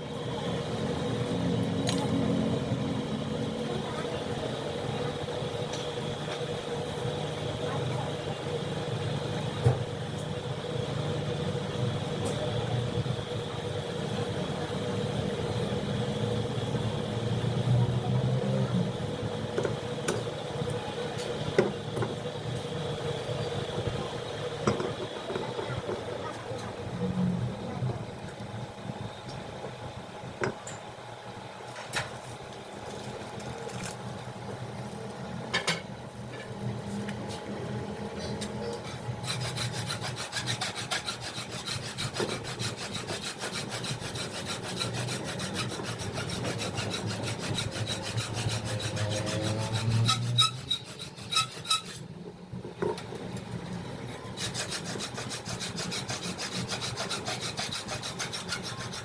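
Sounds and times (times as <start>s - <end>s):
rhythmic rasping rubbing: 38.8s - 52.0s, 54.4s - 59.0s.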